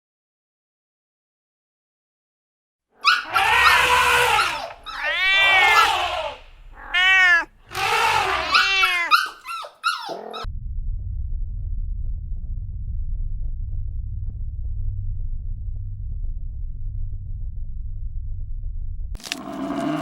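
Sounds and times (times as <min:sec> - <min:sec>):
animal calls: 0:03.0 - 0:10.5
low steady rumble: 0:10.5 - 0:19.2.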